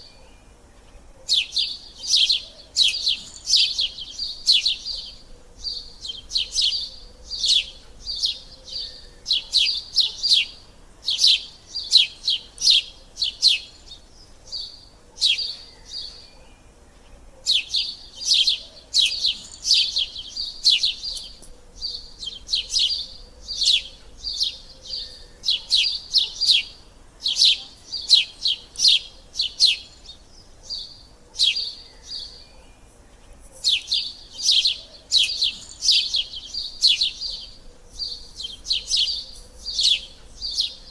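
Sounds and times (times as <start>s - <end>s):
sparrows chirping: 0.0s - 40.9s.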